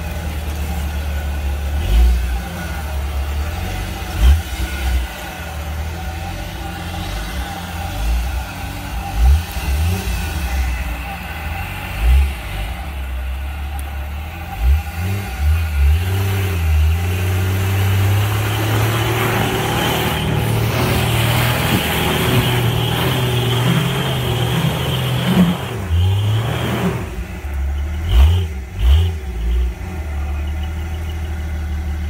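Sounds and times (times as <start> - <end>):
engine revving in surges: 0.0 - 31.4.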